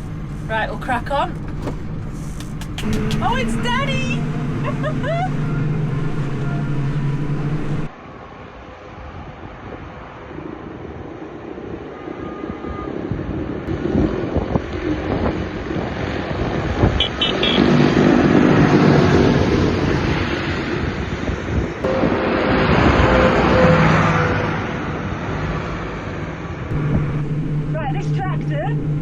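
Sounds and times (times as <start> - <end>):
tractor engine under load: 0.0 - 7.9
wind buffeting microphone: 0.0 - 23.6.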